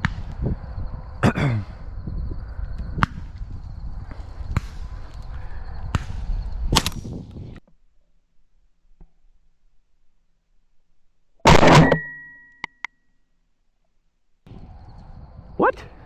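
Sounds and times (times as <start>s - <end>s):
shotgun shots: 11.5s - 12.2s.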